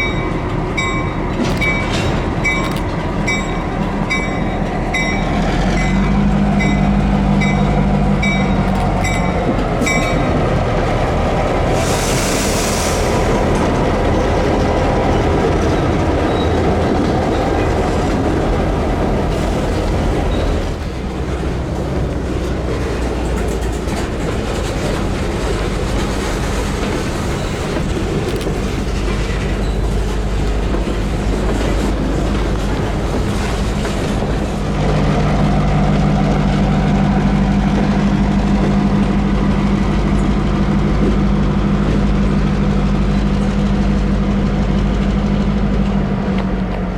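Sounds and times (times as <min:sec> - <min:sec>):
diesel locomotive engines: 0:00.0 - 0:46.9
rail cars rattling over track: 0:00.0 - 0:46.9.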